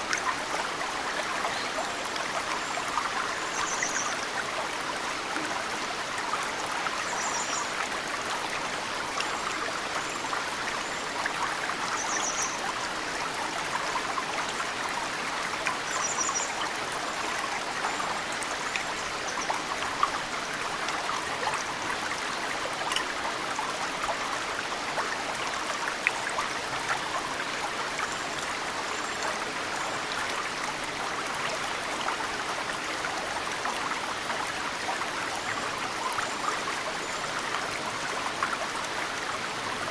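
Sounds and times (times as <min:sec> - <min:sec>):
mountain stream running: 0:00.0 - 0:39.9.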